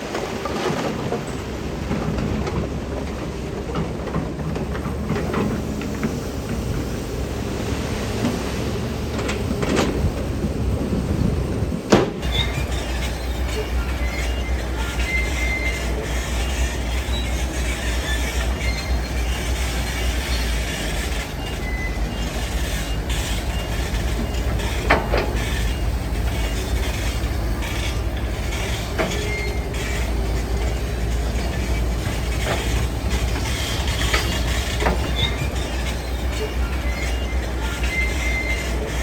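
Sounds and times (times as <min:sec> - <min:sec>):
diesel engine rumble: 0:00.0 - 0:39.0
metallic squeals: 0:12.2 - 0:39.0
metal clanks: 0:23.0 - 0:38.6.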